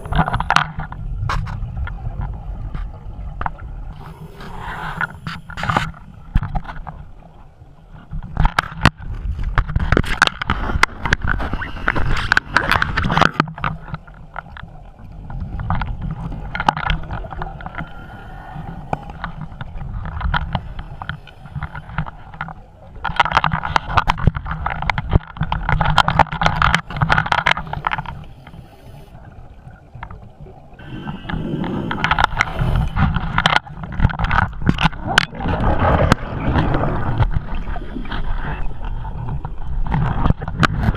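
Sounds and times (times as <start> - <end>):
exhaled bubbles underwater: 34.7 - 40.0.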